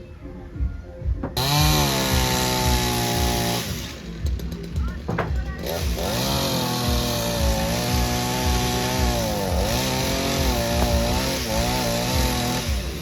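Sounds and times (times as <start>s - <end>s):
chainsaw cutting wood: 1.3s - 13.0s.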